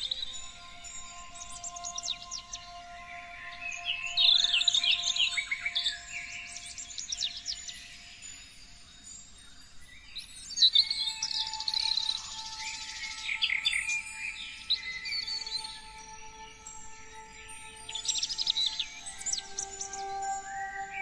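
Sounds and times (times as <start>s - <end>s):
songbirds chirping and trilling: 0.0s - 21.0s.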